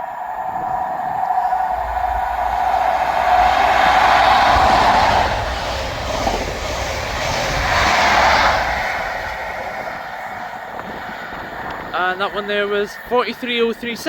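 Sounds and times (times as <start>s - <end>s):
train passing with rail noise: 0.0s - 14.0s.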